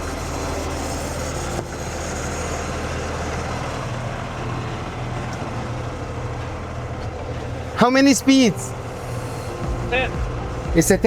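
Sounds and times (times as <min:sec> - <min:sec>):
diesel truck engine humming: 0:00.0 - 0:11.0.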